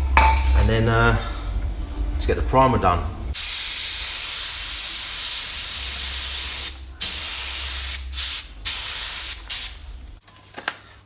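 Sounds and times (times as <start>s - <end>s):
spray gun hissing: 3.4s - 9.9s.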